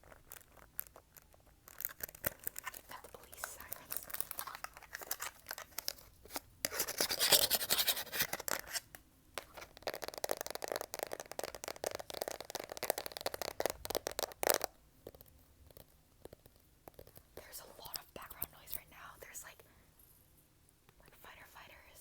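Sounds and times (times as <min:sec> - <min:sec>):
fast tapping clicking and scratching: 0:09.6 - 0:17.2.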